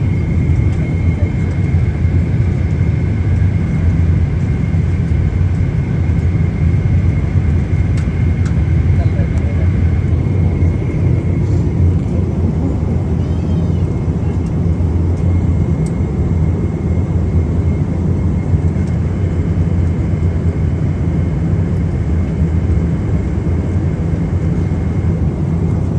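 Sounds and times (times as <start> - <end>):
jet engines running: 0.0 - 25.9.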